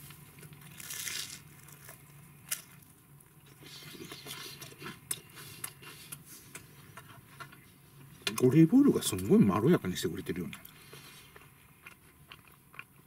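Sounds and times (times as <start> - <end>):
crunching crisp toast: 0.0 - 4.2
chewing toast: 10.9 - 13.0.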